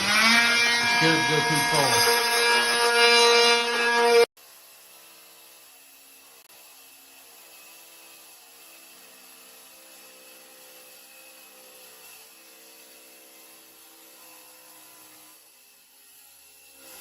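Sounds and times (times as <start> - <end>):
faint motor drone: 0.0 - 4.3.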